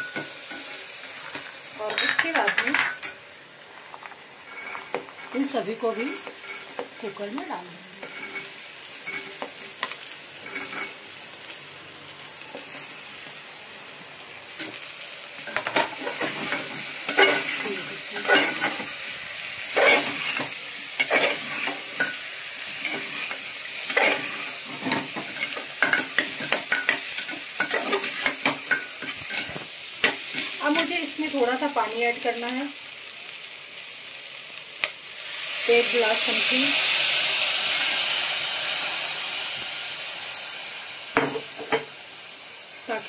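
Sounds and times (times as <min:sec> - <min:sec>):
vegetables sizzling in hot oil: 0:00.0 - 0:43.0.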